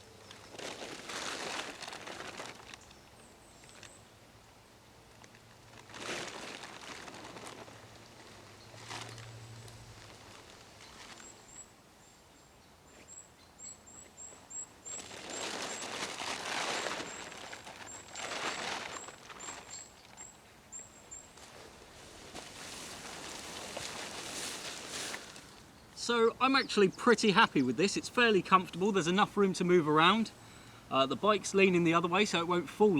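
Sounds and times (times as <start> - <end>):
rustling: 0.2 - 3.0, 5.1 - 11.6, 14.8 - 20.4, 21.0 - 26.1.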